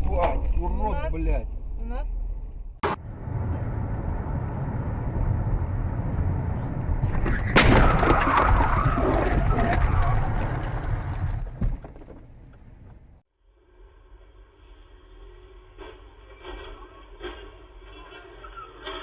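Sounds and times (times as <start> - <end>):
engine and road noise: 0.0 - 19.0
vehicle impact: 2.8 - 13.2
debris rattling and clattering: 7.0 - 13.2.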